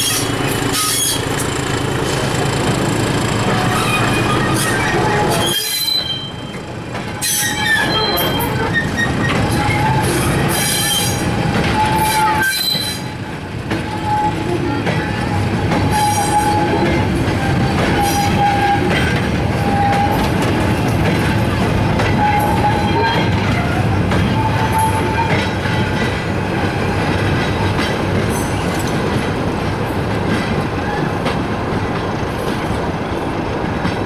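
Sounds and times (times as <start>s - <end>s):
wheel squeal: 0.0s - 2.2s, 3.5s - 6.6s, 7.2s - 13.1s
diesel train rumbling: 0.0s - 34.0s.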